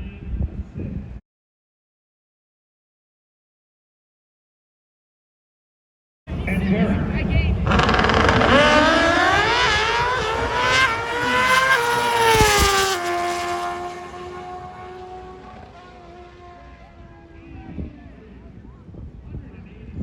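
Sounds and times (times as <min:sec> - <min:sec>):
motorcycle engines accelerating: 0:06.3 - 0:19.0.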